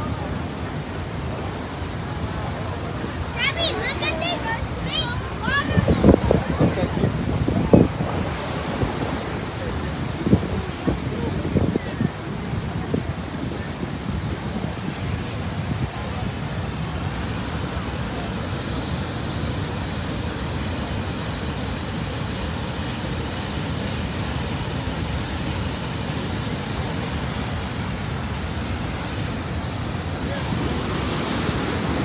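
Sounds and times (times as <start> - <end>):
white water rushing over falls: 0.0 - 32.0.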